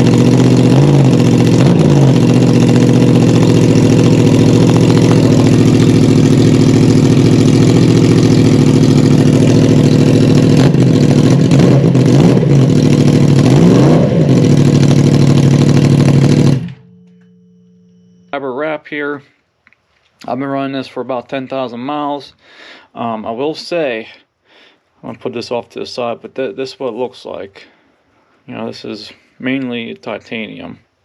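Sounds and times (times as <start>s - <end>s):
motorcycle engine idling loudly: 0.0s - 17.1s
engine throttle blips: 0.0s - 18.9s.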